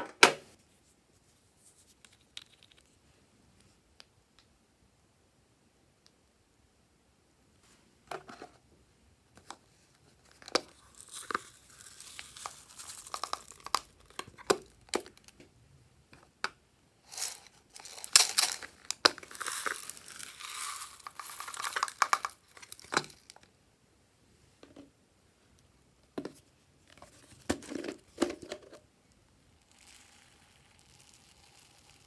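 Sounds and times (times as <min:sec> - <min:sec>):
slime crackling and popping: 0:10.7 - 0:15.2, 0:17.2 - 0:23.4.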